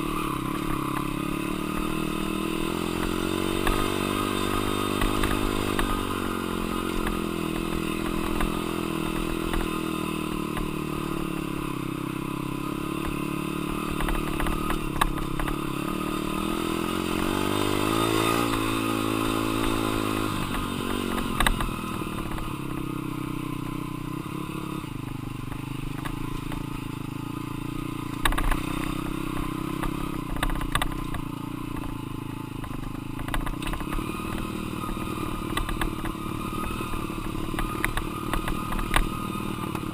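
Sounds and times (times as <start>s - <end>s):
dirt bike engine revving: 0.0s - 31.8s, 32.6s - 39.9s.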